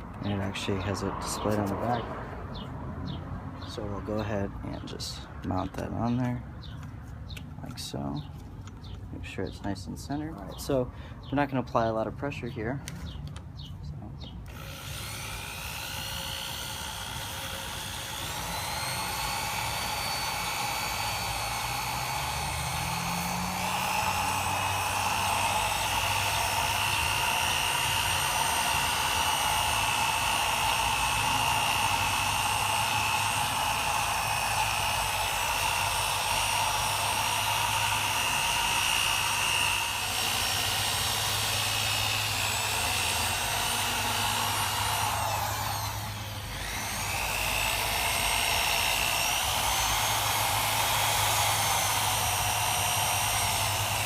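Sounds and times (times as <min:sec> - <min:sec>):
power drill sanding plastic: 0:00.0 - 0:02.6, 0:14.4 - 0:54.0.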